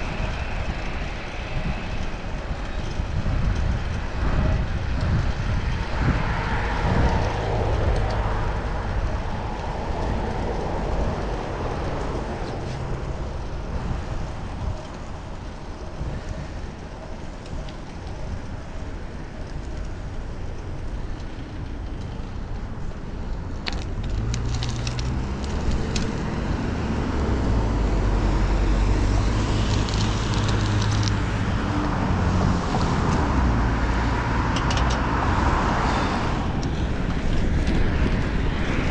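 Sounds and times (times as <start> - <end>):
road traffic: 0.0 - 38.9
vehicle engine rumble: 0.0 - 38.9
wind rush: 0.0 - 38.9.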